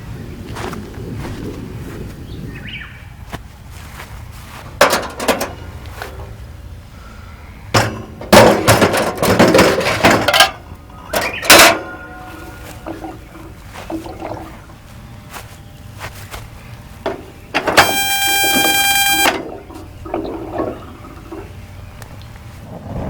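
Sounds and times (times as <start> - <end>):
metal and glassware clattering: 4.8 - 5.6, 7.8 - 13.0
faint ring: 17.1 - 19.6.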